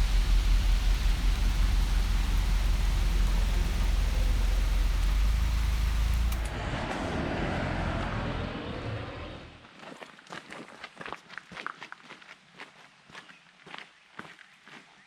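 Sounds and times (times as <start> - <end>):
car engine drone with road noise: 0.0 - 9.6.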